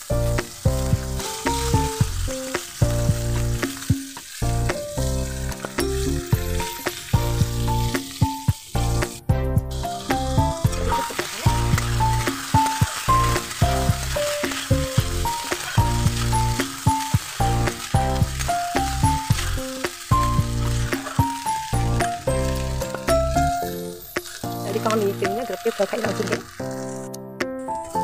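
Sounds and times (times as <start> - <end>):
background music with beat: 0.0 - 25.5
rice sizzling in oil: 0.0 - 27.1
metal spatula stirring in wok: 9.8 - 23.1.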